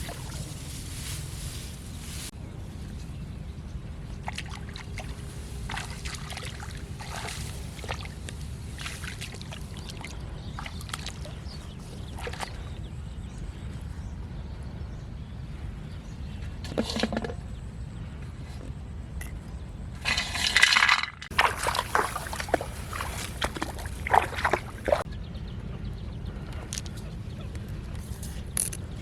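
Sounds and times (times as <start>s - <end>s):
water sloshing and splashing: 0.0s - 2.4s, 4.1s - 12.8s, 20.0s - 25.1s
steady low rumble: 0.0s - 20.1s.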